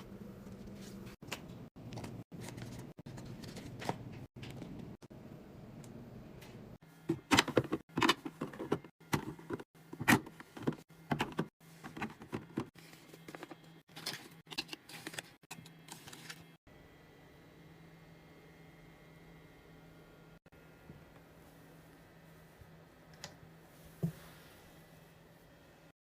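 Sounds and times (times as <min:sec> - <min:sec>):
drinks and packaging being handled: 0:00.4 - 0:05.0, 0:07.0 - 0:16.6.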